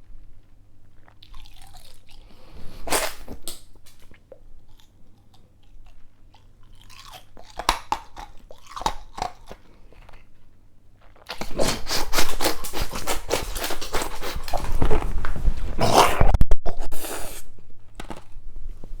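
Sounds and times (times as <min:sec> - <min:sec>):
ice cubes crunched and chewed: 0:00.1 - 0:15.2.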